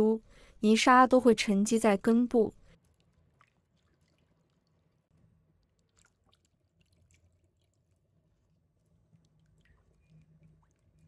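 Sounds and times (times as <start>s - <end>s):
water splashing and dripping: 2.8s - 11.0s.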